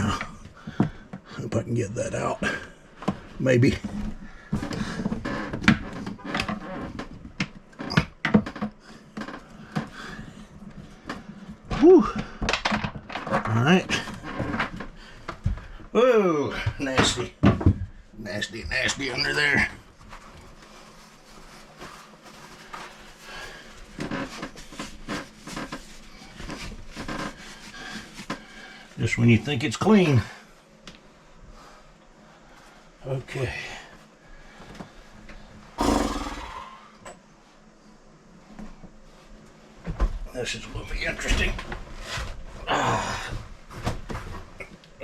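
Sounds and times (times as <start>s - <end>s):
scraping and rustling: 19.9s - 28.9s.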